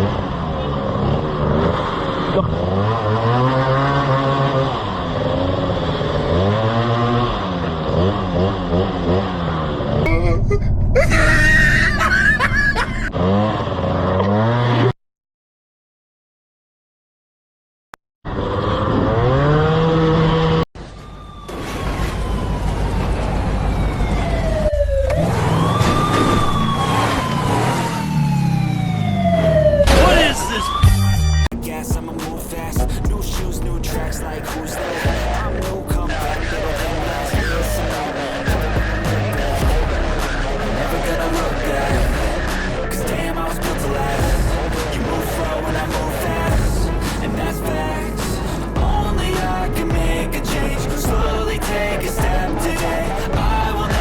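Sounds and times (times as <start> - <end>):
motorcycle engine revving: 0.0 - 10.1, 13.1 - 15.0, 18.3 - 20.6, 31.5 - 54.0
police siren wailing: 18.8 - 54.0.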